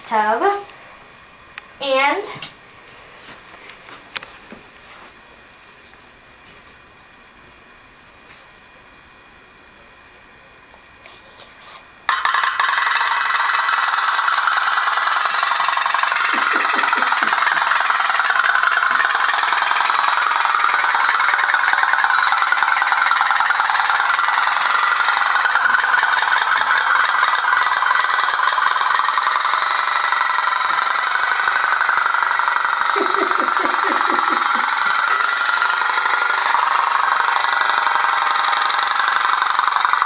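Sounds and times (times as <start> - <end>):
pop-pop boat putt-putt rattle: 12.1 - 40.0.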